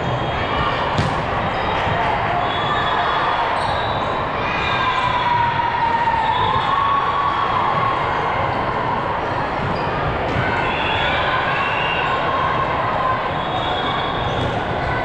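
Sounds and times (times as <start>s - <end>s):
many voices echoing in gym: 0.0s - 15.0s
volleyballs hit and bouncing: 0.1s - 2.2s.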